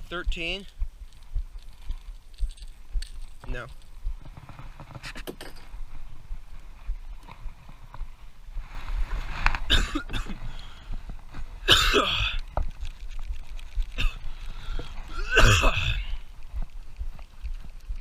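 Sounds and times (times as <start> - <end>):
person making harsh coughing sounds: 9.7 - 10.4, 11.6 - 12.4, 14.0 - 14.2, 15.1 - 16.2.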